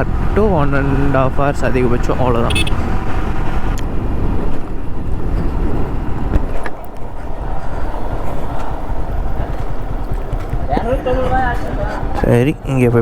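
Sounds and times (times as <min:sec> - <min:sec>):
motorcycle engine: 0:00.0 - 0:06.3
road noise: 0:00.0 - 0:13.0
wind buffeting microphone: 0:00.0 - 0:13.0.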